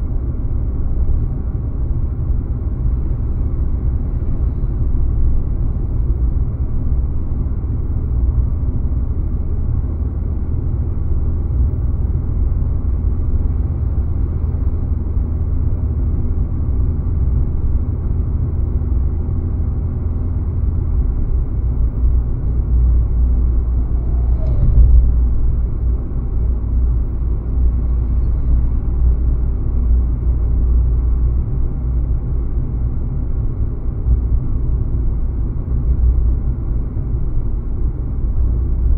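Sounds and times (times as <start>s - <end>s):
car road and engine rumble: 0.0s - 38.9s
brief knock: 24.0s - 25.3s.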